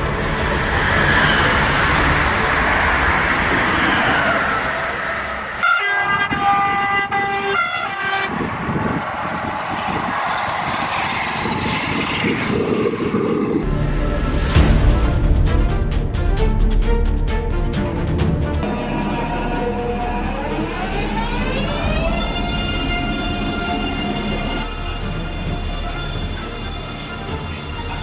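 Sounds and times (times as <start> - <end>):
high-speed train rushing past: 0.0 - 5.6, 6.9 - 16.4
train horn chord: 18.6 - 27.0.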